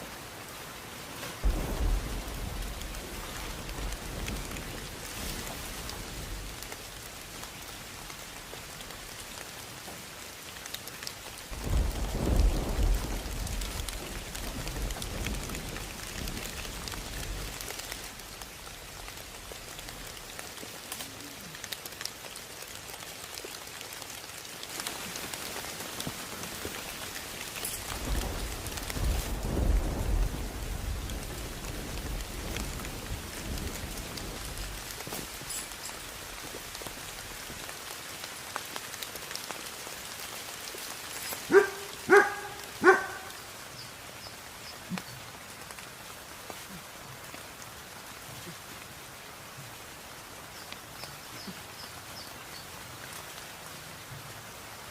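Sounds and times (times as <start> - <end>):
heavy rain falling: 0.0 - 54.9
deep rolls of thunder: 1.4 - 4.9, 11.6 - 17.5, 27.9 - 34.9.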